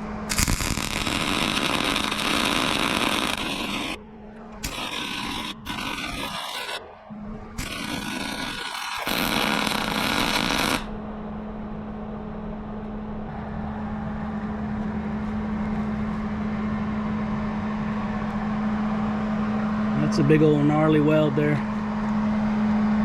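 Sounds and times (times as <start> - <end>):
loud hissing: 0.0 - 10.9
steady machine hum: 0.0 - 23.0.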